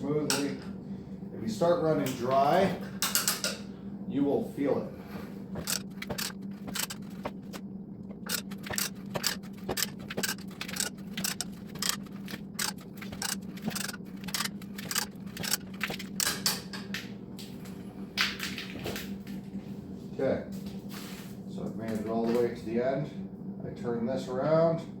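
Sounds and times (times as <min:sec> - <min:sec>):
pipe threader ratchet clicking: 0:05.6 - 0:07.0, 0:08.2 - 0:16.5.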